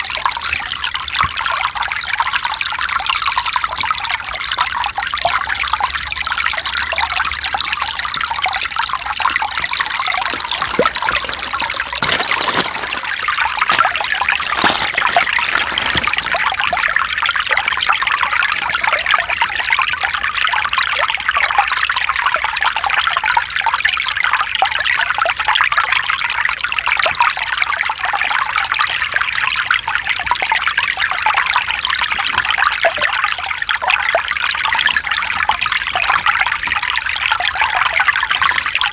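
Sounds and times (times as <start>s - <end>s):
stream splashing over rocks: 7.5s - 20.4s.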